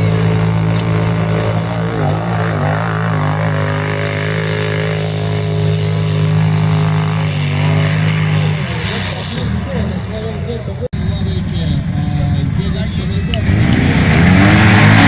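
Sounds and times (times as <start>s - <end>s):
atv engine running: 0.0s - 10.9s.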